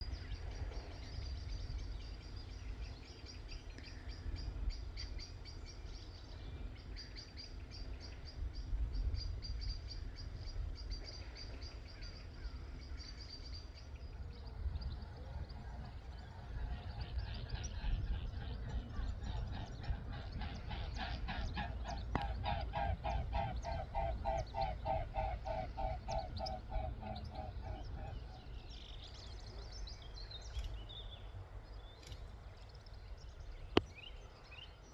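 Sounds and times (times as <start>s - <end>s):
low wind rumble: 0.0s - 34.9s
wetland birds calling: 14.5s - 30.7s.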